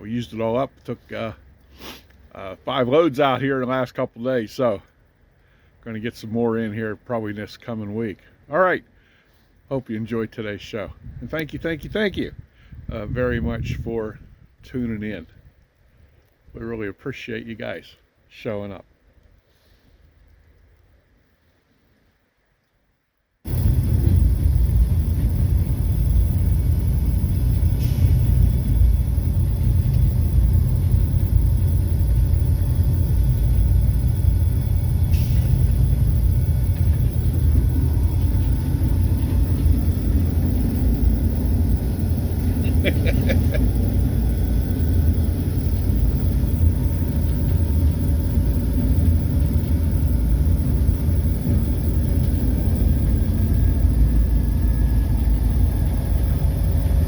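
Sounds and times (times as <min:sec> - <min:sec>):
wind noise: 0:10.9 - 0:16.6, 0:23.5 - 0:57.0
diesel locomotive rumble: 0:23.5 - 0:57.0.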